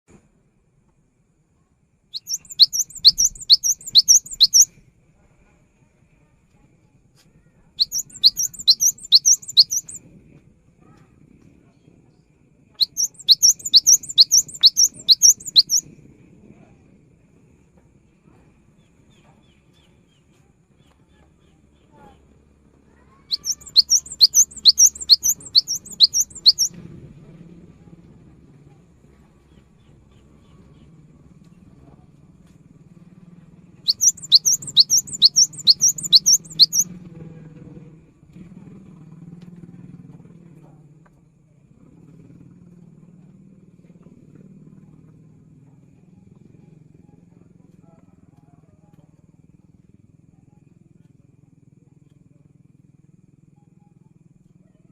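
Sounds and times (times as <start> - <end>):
bird singing high notes: 2.2 - 4.7, 7.8 - 10.0, 12.8 - 15.8, 23.3 - 26.7, 33.9 - 36.8.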